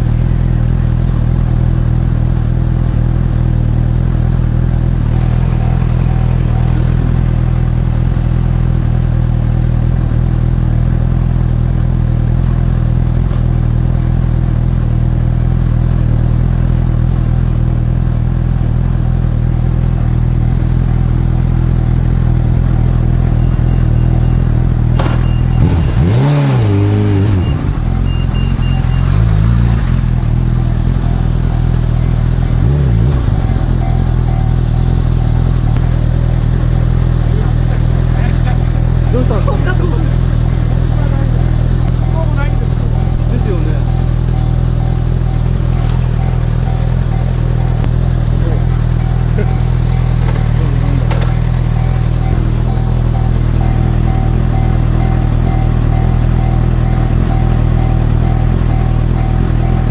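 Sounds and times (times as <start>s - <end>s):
motorcycle engine idling: 0.0s - 26.5s, 27.2s - 59.9s
throttle blips: 40.2s - 59.9s.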